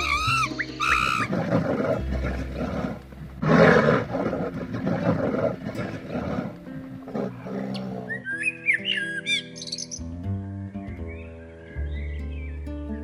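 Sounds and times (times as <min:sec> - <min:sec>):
large animal rough calls: 0:00.0 - 0:08.3
background music: 0:00.0 - 0:13.0.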